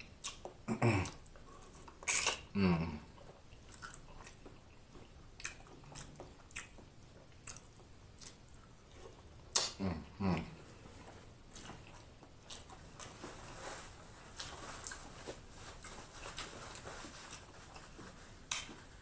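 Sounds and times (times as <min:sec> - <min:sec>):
soft chewing: 0:00.0 - 0:19.0
paper towel rustling: 0:12.8 - 0:19.0.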